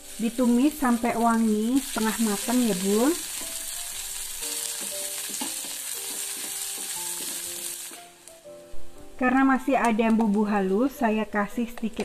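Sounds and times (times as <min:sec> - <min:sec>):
soft background music: 0:00.0 - 0:12.0
vegetables sizzling in oil: 0:00.0 - 0:12.0
spatula stirring: 0:03.3 - 0:08.0.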